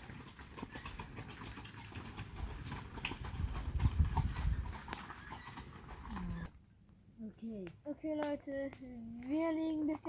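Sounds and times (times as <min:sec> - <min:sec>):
horse hooves on forest floor: 0:00.0 - 0:06.6.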